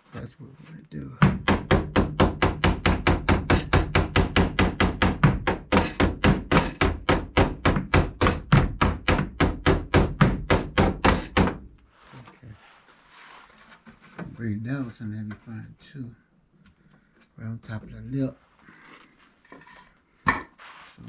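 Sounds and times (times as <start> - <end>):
hammer pounding on steel: 1.2 - 11.7.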